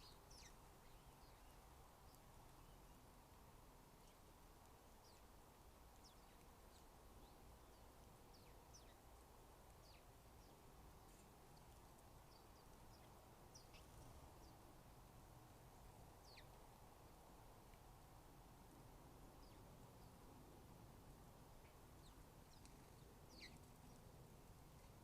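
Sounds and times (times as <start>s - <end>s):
faint bird chirps: 0.0s - 3.1s, 5.0s - 9.1s, 16.2s - 16.6s, 21.6s - 24.1s.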